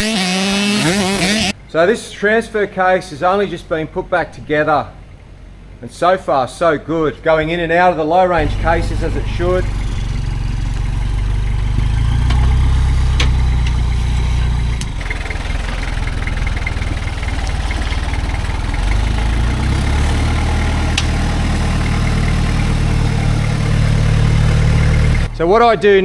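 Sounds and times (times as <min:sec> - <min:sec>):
diesel engine running at low revs: 0:08.2 - 0:26.0.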